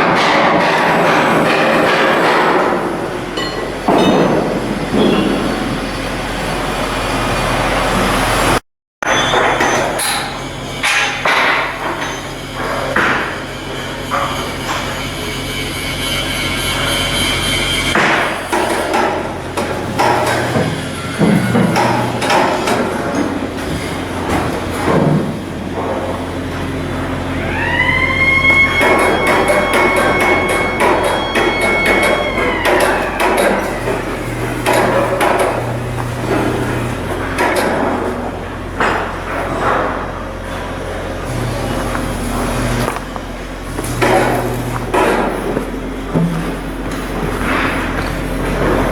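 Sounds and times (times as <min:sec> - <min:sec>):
low machinery hum: 0:09.2 - 0:48.9
hammer striking steel: 0:28.7 - 0:35.7.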